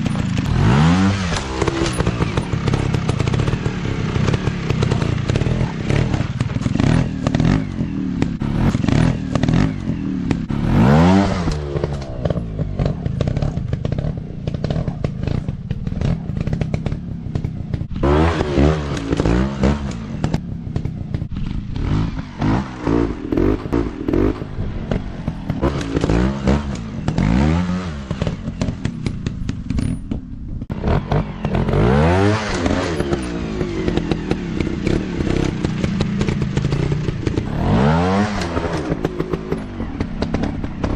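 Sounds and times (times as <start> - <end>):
dirt bike engines revving: 0.0 - 40.9
sharp clicks and knocks: 11.4 - 31.8.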